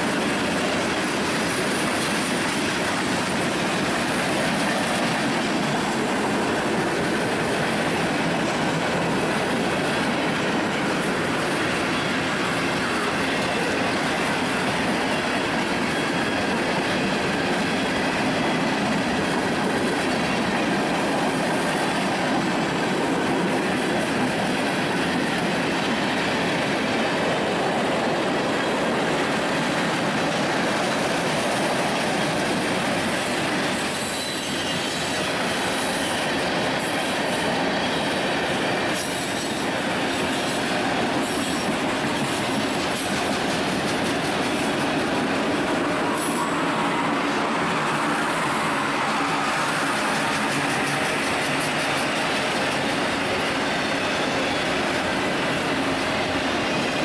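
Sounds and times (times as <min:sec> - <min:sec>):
train wheels rushing on rail: 0:00.0 - 0:57.0
high wheel squeals: 0:33.0 - 0:57.0.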